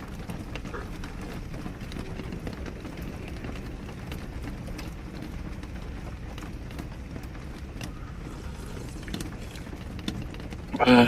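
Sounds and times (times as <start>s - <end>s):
heavy rain on a vehicle roof: 0.0s - 11.0s
strong wind: 0.0s - 11.0s.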